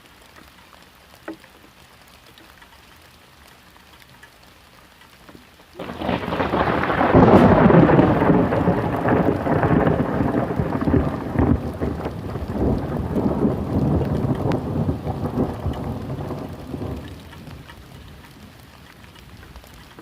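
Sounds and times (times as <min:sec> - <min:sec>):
faint rain: 0:00.0 - 0:20.0
thunder clap rumbling: 0:05.8 - 0:19.4.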